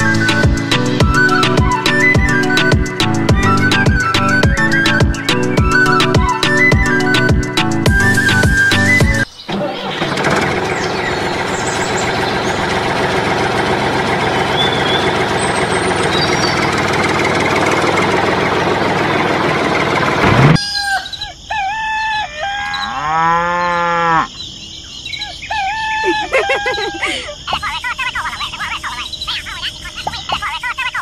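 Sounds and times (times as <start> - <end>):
small tractor engine drone: 0.0 - 20.6
cow mooing: 22.7 - 24.4.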